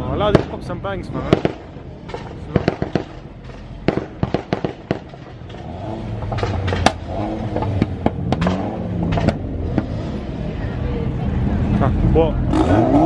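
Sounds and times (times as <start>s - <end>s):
car exhaust pops and bangs: 0.2s - 10.1s
engine revving: 2.2s - 10.6s, 11.3s - 13.0s.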